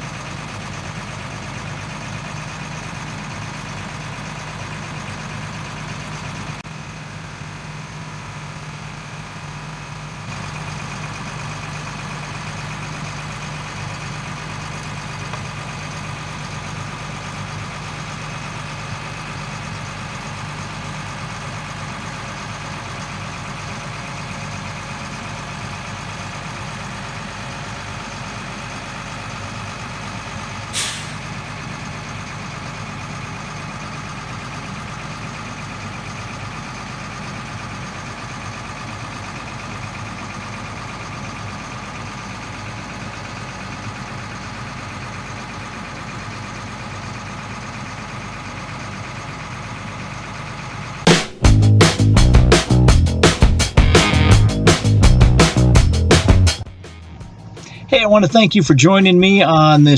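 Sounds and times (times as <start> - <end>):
truck diesel engine running: 0.0 - 59.9
air brake hiss: 30.7 - 31.4.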